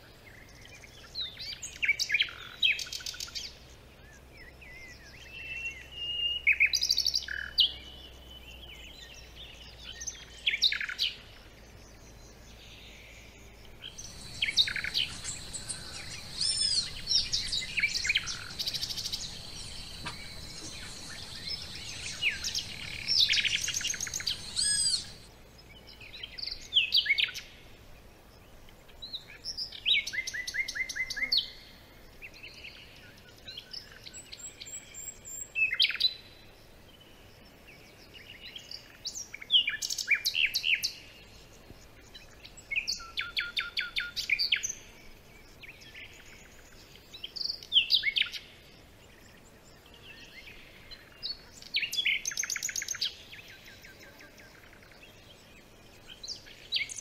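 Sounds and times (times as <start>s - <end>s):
wild birds calling and singing: 0.2s - 27.6s, 37.7s - 57.0s
high-pitched hum: 14.0s - 25.2s.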